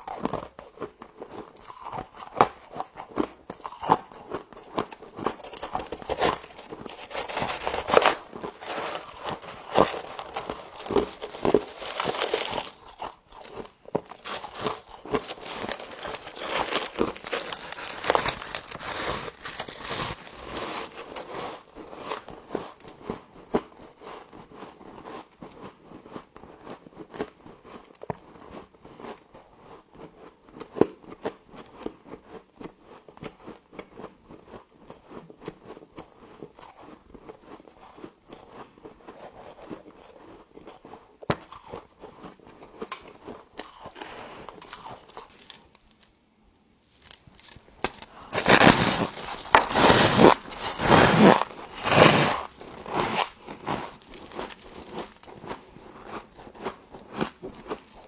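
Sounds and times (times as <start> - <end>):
person crunching frost: 0.0 - 22.8, 47.2 - 58.0.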